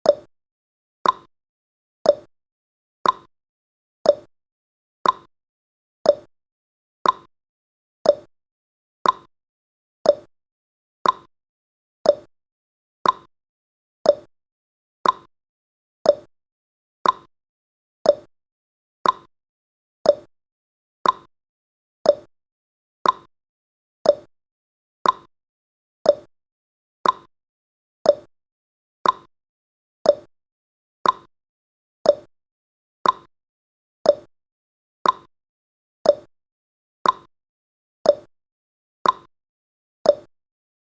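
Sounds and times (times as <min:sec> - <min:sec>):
timer ticking: 0:00.0 - 0:00.3, 0:01.0 - 0:01.3, 0:02.0 - 0:02.3, 0:03.0 - 0:03.3, 0:04.0 - 0:04.3, 0:05.0 - 0:05.3, 0:06.0 - 0:06.3, 0:07.0 - 0:07.3, 0:08.0 - 0:08.3, 0:09.0 - 0:09.3, 0:10.0 - 0:10.3, 0:11.0 - 0:11.3, 0:12.0 - 0:12.3, 0:13.0 - 0:13.3, 0:14.0 - 0:14.3, 0:15.0 - 0:15.3, 0:16.0 - 0:16.3, 0:17.0 - 0:17.3, 0:18.0 - 0:18.3, 0:19.0 - 0:19.3, 0:20.0 - 0:20.3, 0:21.0 - 0:21.3, 0:22.0 - 0:22.3, 0:23.0 - 0:23.3, 0:24.0 - 0:24.3, 0:25.0 - 0:25.3, 0:26.0 - 0:26.3, 0:27.0 - 0:27.3, 0:28.0 - 0:28.3, 0:29.0 - 0:29.3, 0:30.0 - 0:30.3, 0:31.0 - 0:31.3, 0:32.0 - 0:32.3, 0:33.0 - 0:33.3, 0:34.0 - 0:34.3, 0:35.0 - 0:35.3, 0:36.0 - 0:36.3, 0:37.0 - 0:37.3, 0:38.0 - 0:38.3, 0:39.0 - 0:39.3, 0:40.1 - 0:40.3.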